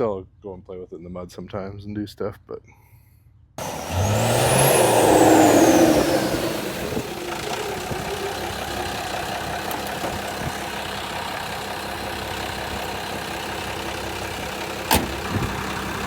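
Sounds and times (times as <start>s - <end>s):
diesel engine revving and idling: 3.6s - 16.0s.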